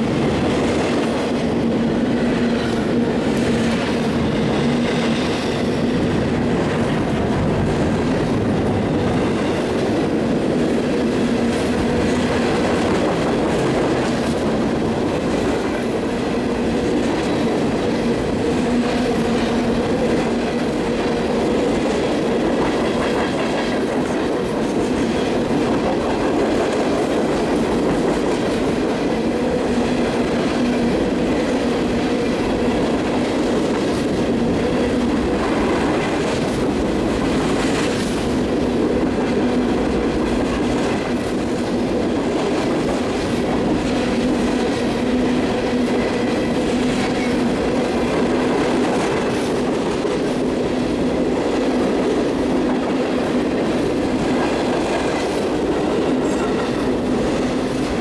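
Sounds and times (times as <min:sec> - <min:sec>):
steel wheels running on rails: 0:00.0 - 0:58.0.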